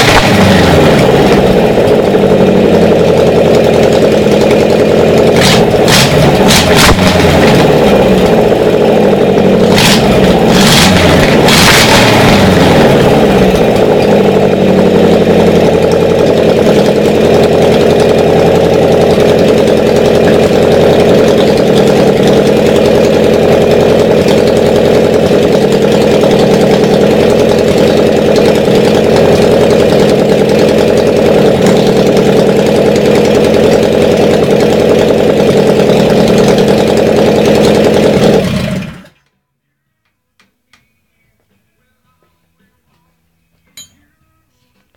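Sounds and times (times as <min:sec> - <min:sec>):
motorcycle engine revving and idling: 0:00.0 - 0:39.3.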